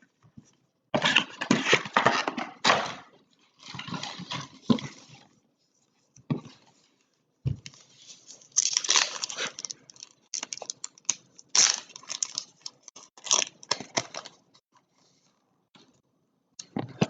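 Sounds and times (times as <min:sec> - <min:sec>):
crinkly wrapper tearing: 0:08.4 - 0:14.4.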